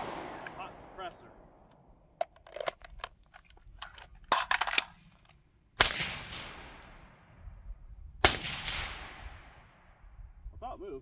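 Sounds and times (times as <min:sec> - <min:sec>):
sharp clicks and clatter: 0:02.2 - 0:05.3.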